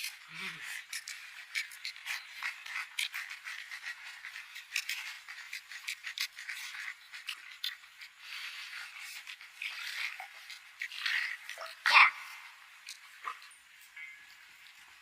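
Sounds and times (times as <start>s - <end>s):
scraping and clicking: 0.0s - 11.8s.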